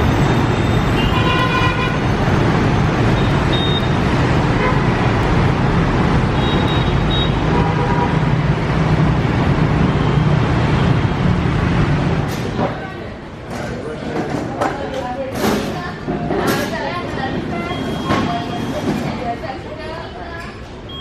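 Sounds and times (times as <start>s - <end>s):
road traffic noise: 0.0s - 21.0s
vehicle horns tooting: 0.6s - 2.1s, 3.1s - 5.1s, 6.3s - 8.4s.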